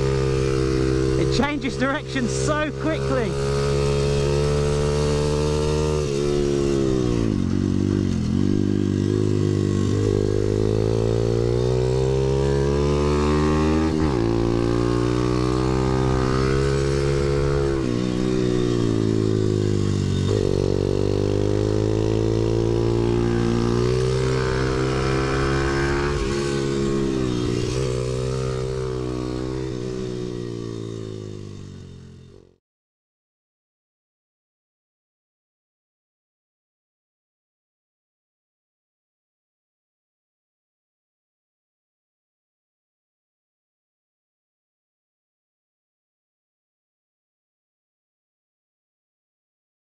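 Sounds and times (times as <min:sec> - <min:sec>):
pit bike engine revving: 0:00.0 - 0:32.4.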